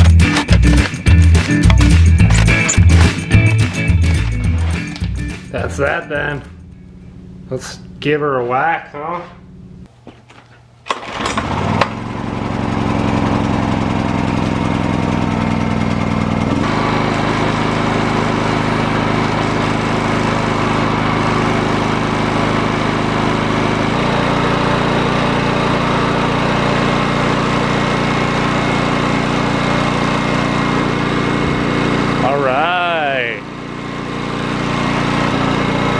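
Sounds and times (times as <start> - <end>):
quick sharp sounds: 0.0 - 5.0
generator engine running: 0.0 - 8.1, 10.9 - 35.9.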